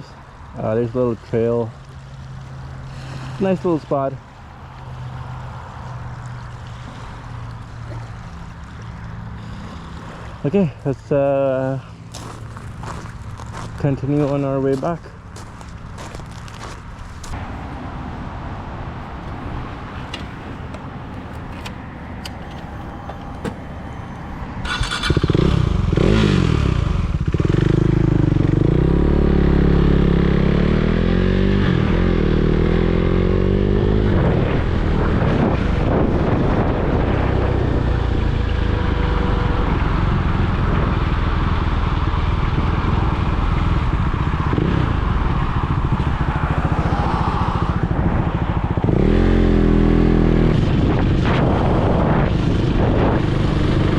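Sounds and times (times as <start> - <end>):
motorcycle engine revving: 21.4 - 53.9
wind noise on microphone: 32.8 - 53.9.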